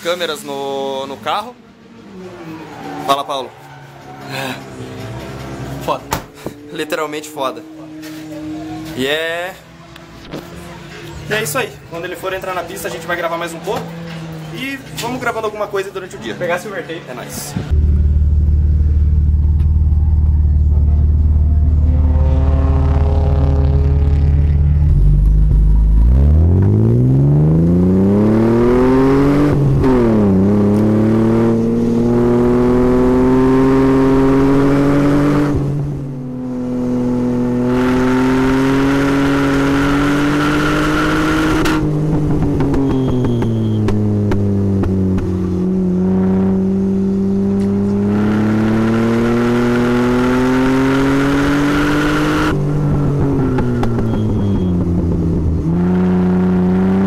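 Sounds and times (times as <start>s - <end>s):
straight-six engine revving: 20.8s - 42.3s, 43.0s - 52.6s.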